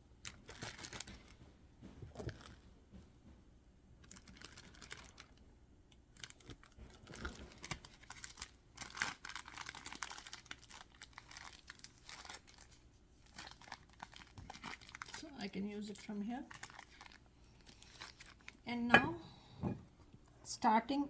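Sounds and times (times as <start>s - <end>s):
plastic bag crinkling: 0.2s - 1.4s, 4.0s - 5.4s, 6.1s - 18.6s.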